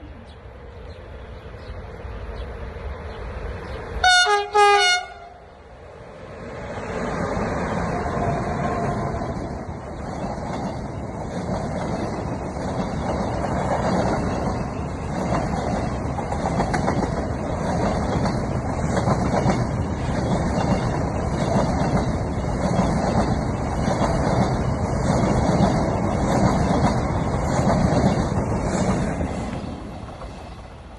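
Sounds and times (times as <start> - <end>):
train wheels rumbling on rails: 0.0 - 30.9
train clatter: 7.2 - 30.6.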